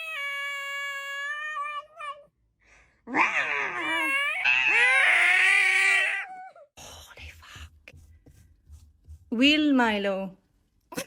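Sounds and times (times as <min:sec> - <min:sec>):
cat meowing: 0:00.0 - 0:02.3.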